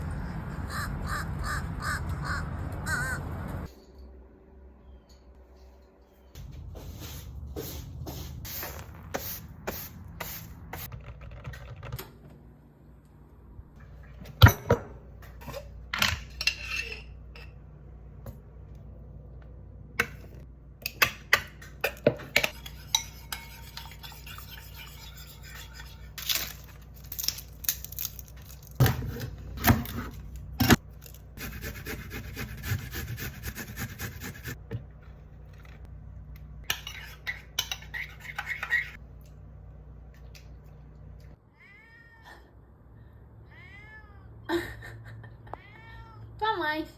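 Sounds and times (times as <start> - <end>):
dishes and cutlery clinking: 21.8 - 26.4, 36.6 - 39.0.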